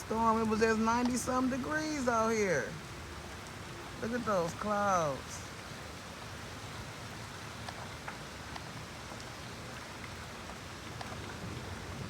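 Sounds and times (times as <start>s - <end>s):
heavy rain on the ground: 0.0s - 12.0s
raindrops ticking: 0.0s - 12.0s.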